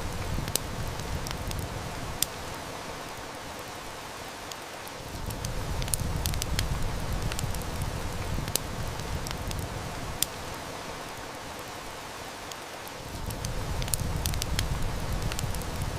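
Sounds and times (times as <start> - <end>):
heavy rain: 0.0 - 15.9
wood fire crackling: 0.0 - 15.9.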